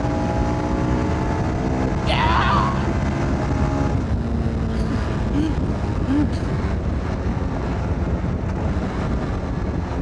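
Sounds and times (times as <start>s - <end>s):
wind buffeting on microphone: 1.4s - 10.0s
motorcycle engine running: 2.7s - 10.0s.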